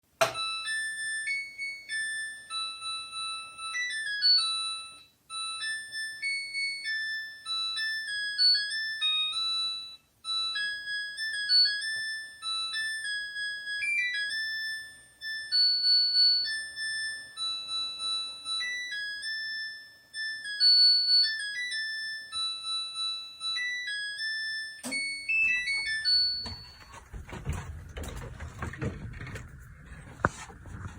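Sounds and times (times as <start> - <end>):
rumbling rustling noise: 26.7 - 30.9.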